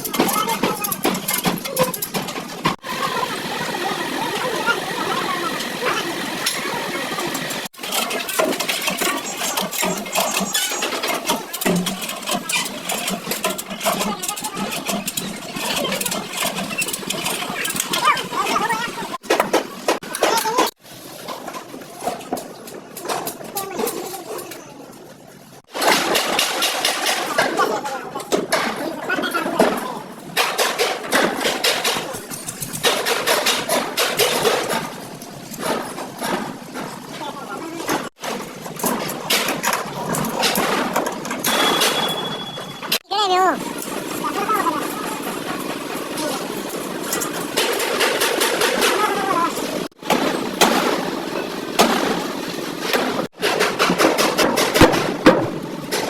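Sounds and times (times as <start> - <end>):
vehicle engine clattering: 0.0 - 20.8, 25.6 - 43.0, 43.6 - 56.0
sharp knocks and bangs: 37.8 - 43.0, 45.3 - 56.0.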